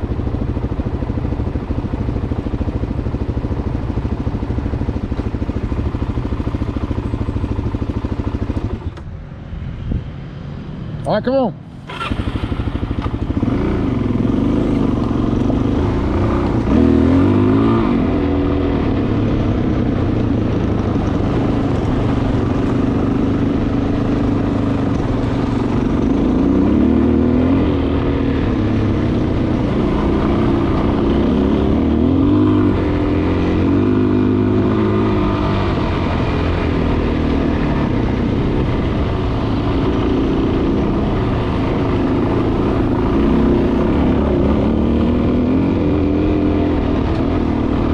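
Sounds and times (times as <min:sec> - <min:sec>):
motorcycle engine revving: 0:11.7 - 0:47.9.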